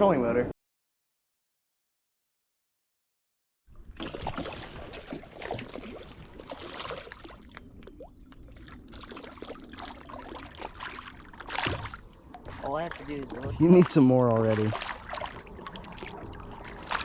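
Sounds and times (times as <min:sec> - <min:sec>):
water splashing against boat: 0:04.0 - 0:17.0.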